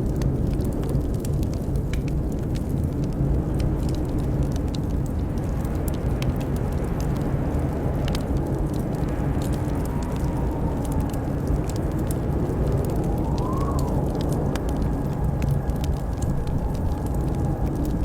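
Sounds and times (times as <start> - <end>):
wood fire crackling: 0.0 - 18.0
wind howling: 0.1 - 18.0
faint wind whistle: 9.1 - 18.0.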